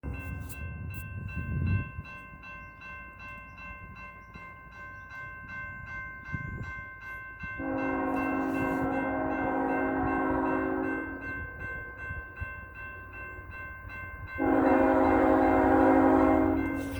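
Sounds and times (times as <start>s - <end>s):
railroad crossing bell ringing: 0.0s - 16.9s
locomotive air horn blast: 7.6s - 11.2s, 14.4s - 16.9s.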